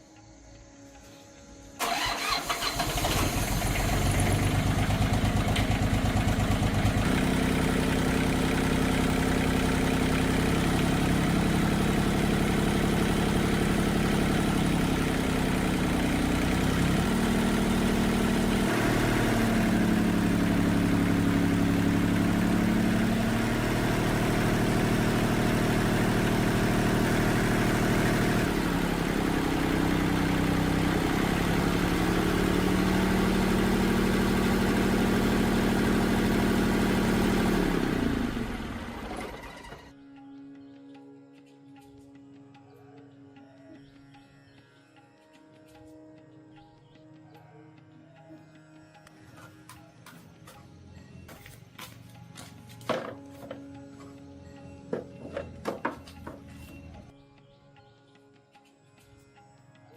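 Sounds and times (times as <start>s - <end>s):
old tractor engine running: 1.8s - 39.9s, 52.4s - 57.1s.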